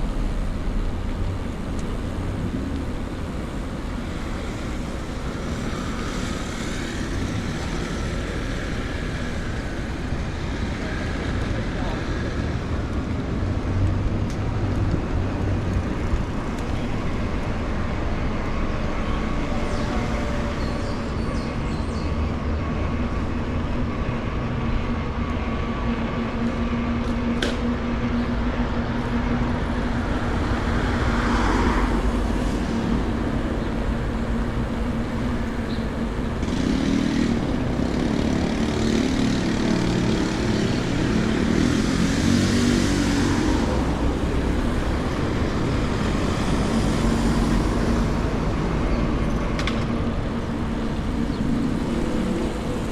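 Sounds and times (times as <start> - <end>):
steady low rumble: 0.0 - 11.8
vehicles passing: 0.0 - 52.9.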